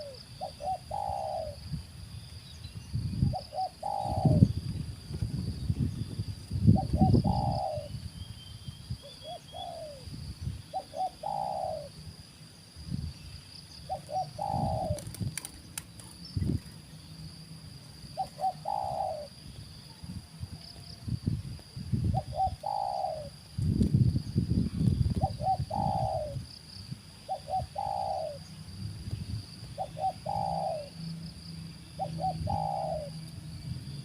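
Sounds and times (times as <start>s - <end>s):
dove cooing: 0.0s - 1.6s, 3.3s - 4.5s, 6.7s - 8.0s, 9.0s - 10.1s, 10.7s - 12.0s, 13.9s - 15.3s, 18.1s - 19.4s, 22.1s - 23.4s, 25.1s - 26.5s, 27.2s - 28.5s, 29.7s - 31.0s, 32.0s - 33.2s
high insect whine: 0.0s - 34.0s.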